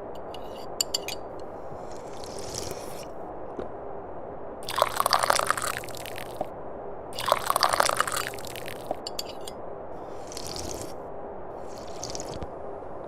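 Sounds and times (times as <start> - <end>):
person slurping tea: 1.6 - 3.1, 4.6 - 6.4, 7.2 - 11.0, 11.6 - 12.5.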